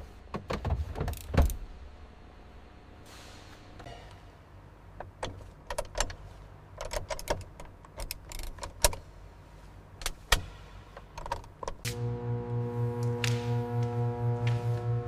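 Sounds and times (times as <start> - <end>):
faint low hum: 11.8 - 15.0.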